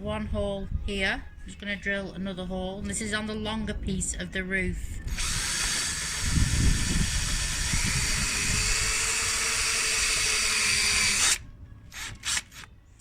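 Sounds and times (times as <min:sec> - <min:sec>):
electric drill boring wood: 0:05.1 - 0:12.7.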